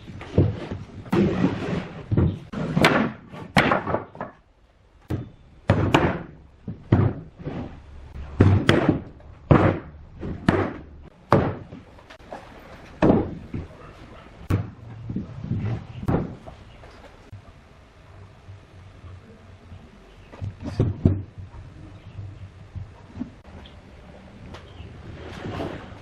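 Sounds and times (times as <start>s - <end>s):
heavy blows on solid wood: 5.0s - 12.2s, 12.9s - 13.8s, 14.4s - 16.6s.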